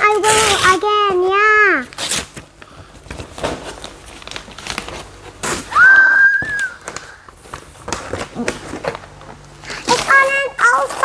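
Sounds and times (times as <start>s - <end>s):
wrapping paper rustling: 0.0s - 5.6s.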